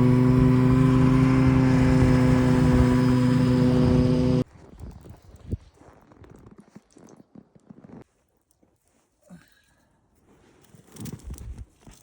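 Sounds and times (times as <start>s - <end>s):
engine running steadily: 0.0s - 4.4s.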